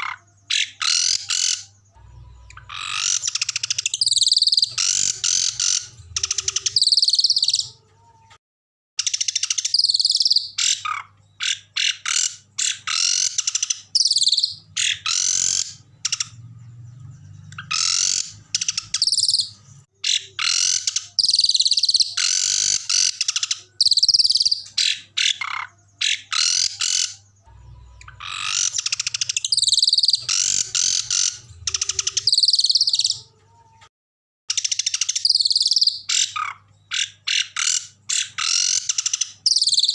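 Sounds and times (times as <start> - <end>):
songbird singing trills: 0.0 - 7.8, 9.0 - 33.3, 34.5 - 39.9.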